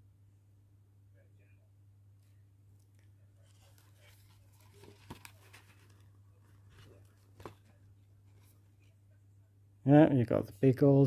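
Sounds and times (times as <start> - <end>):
low steady hum: 0.0 - 11.0
card pages rustling: 2.9 - 8.9.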